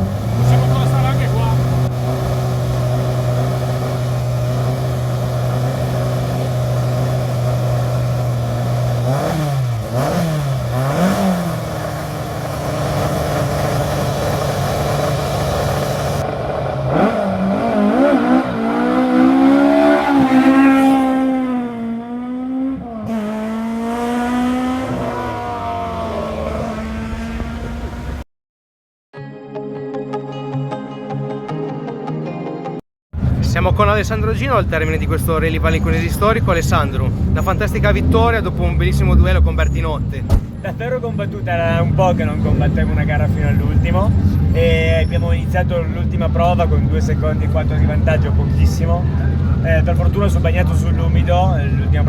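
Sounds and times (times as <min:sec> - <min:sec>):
rally car engine revving: 0:00.0 - 0:28.2, 0:33.2 - 0:52.0.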